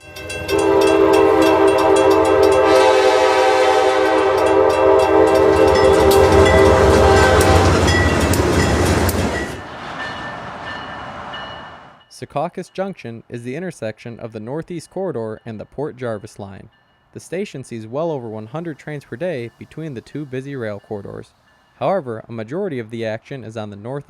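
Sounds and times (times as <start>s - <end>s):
train horn: 0.0s - 9.6s
train rumbling: 0.0s - 12.1s, 16.6s - 22.6s
wheels clicking on rails: 4.1s - 11.6s.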